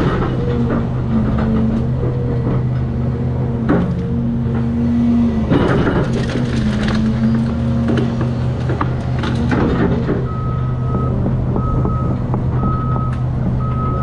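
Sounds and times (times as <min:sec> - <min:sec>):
diesel excavator running: 0:00.0 - 0:14.0
wood debris crunching and cracking: 0:05.5 - 0:10.2.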